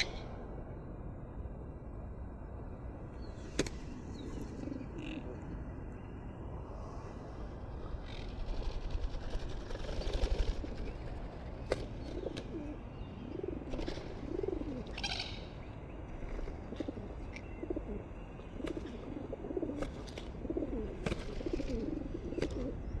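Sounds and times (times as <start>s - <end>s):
birds cooing: 0.0s - 0.3s, 8.0s - 23.0s.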